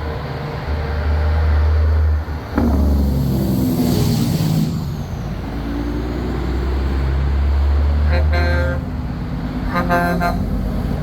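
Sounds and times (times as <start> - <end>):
heavy trucks engine rumble: 0.0 - 11.0
truck horn: 8.0 - 10.8.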